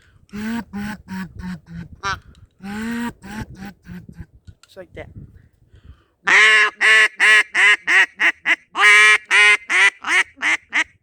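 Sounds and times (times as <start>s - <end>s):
duck call quacks: 0.4s - 4.0s, 6.3s - 11.0s.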